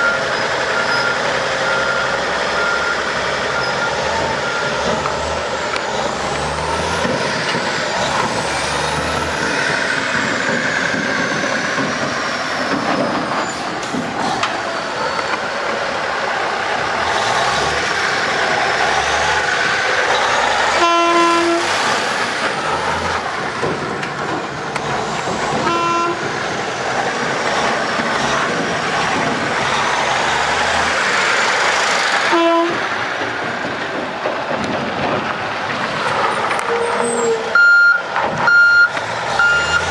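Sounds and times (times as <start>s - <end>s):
dump truck running: 0.0s - 39.9s
truck horn toots: 20.7s - 21.9s, 25.6s - 26.3s, 32.3s - 32.9s.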